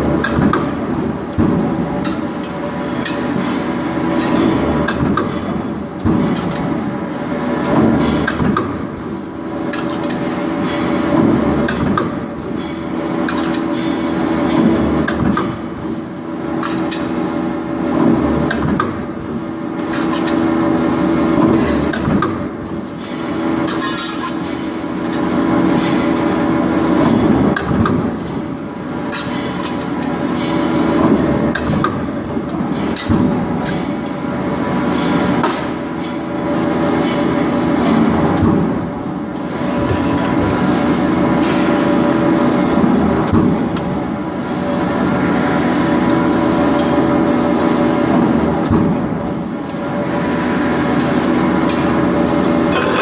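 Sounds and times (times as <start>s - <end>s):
industrial press machinery humming: 0.0s - 53.0s
machine hum: 36.3s - 53.0s
sharp metallic clanks: 52.7s - 53.0s.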